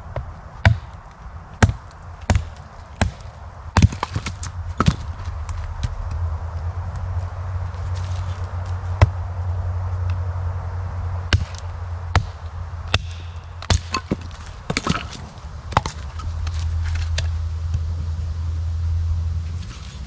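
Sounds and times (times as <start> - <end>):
low rumble: 0.0 - 20.0
wood chopping blows: 0.1 - 6.2, 11.3 - 17.3.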